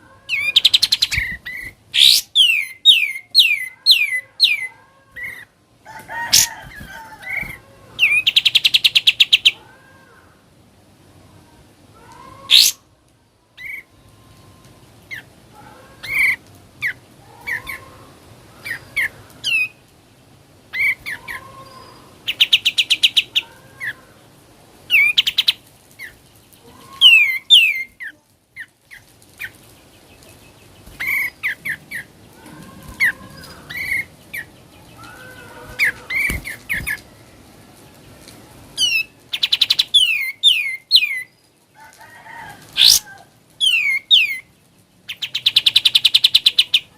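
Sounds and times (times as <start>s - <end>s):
bird chirping and whistling: 0.4s - 4.6s, 12.5s - 12.8s, 38.8s - 41.3s, 42.8s - 43.0s, 43.6s - 44.4s.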